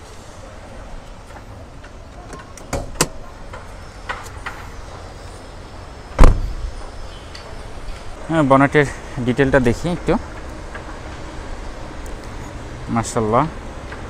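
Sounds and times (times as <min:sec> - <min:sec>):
bonnet heavy thump: 0:06.2 - 0:06.6.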